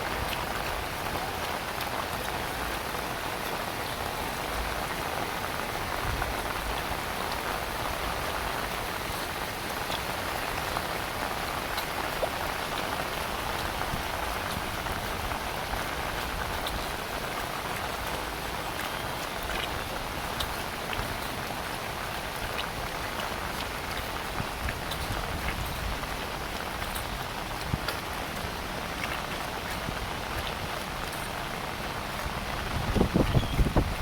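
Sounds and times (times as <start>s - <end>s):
heavy rain: 0.0s - 34.0s
raindrop ticks: 0.1s - 34.0s.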